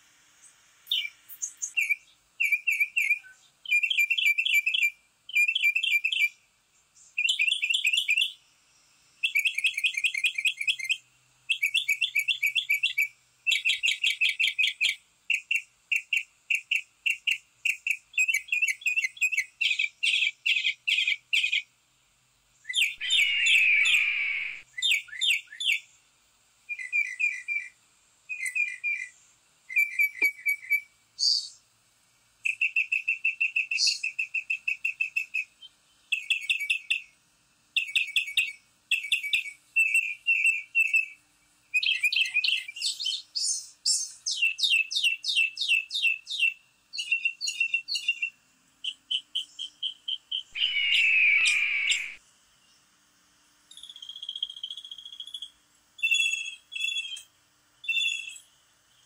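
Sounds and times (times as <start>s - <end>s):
songbirds chirping in trills: 0.4s - 21.7s, 22.5s - 26.1s, 37.8s - 52.9s
harsh bird call sliding down: 23.0s - 24.6s, 50.6s - 52.2s.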